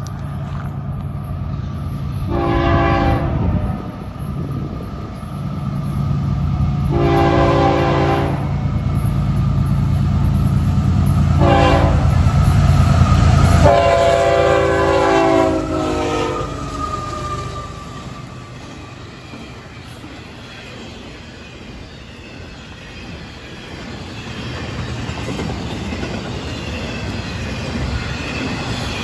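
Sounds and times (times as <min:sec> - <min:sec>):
diesel locomotive engines rumbling: 0:00.0 - 0:29.0
train horn blasts: 0:02.2 - 0:03.9, 0:06.8 - 0:08.6, 0:11.2 - 0:12.5, 0:13.2 - 0:18.4.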